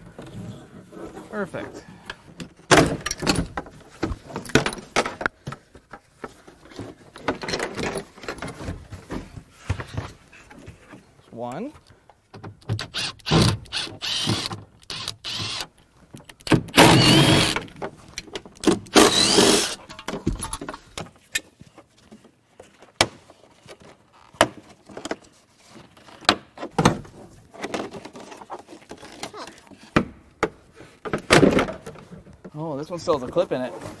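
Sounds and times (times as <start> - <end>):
plastic trim scraping and creaking: 12.6 - 30.0.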